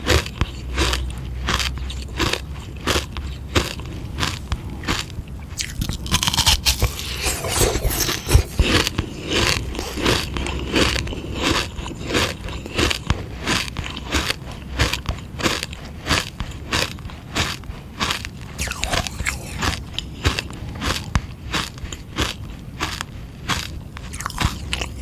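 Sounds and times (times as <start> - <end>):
biting and crunching ice lolly: 0.0 - 25.0
scraping crackling ice: 3.6 - 16.8.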